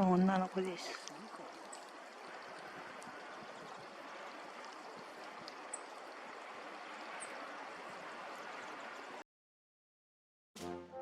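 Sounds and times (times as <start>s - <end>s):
running water: 0.0s - 9.2s.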